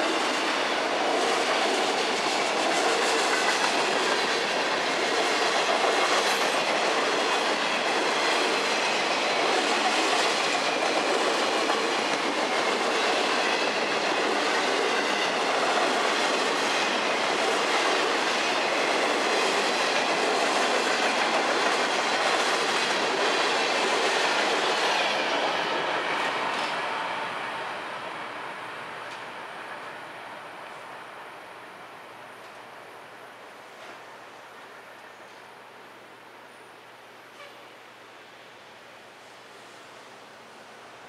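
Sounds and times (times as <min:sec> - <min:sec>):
steel wheels running on rails: 0:00.0 - 0:31.0.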